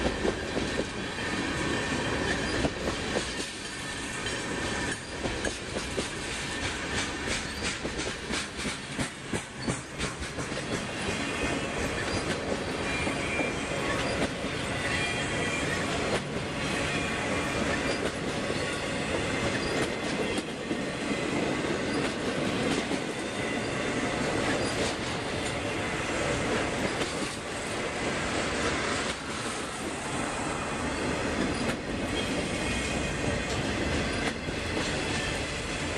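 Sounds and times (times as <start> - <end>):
wheel squeal on rails: 0.0 - 27.8, 28.8 - 35.9
wheels clicking over rail joints: 2.0 - 13.0, 17.7 - 25.7, 26.4 - 27.6, 31.0 - 32.6.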